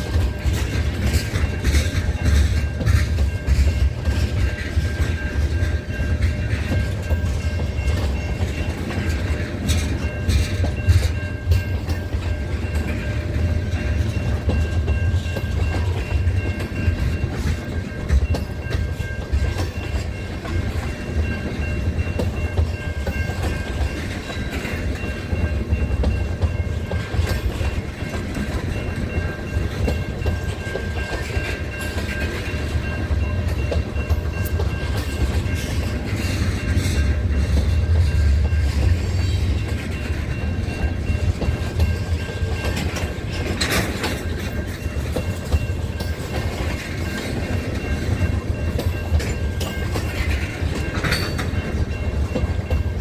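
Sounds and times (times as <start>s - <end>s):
train rolling past rumble: 0.0s - 53.0s
wheels clicking over rail joints: 0.0s - 53.0s.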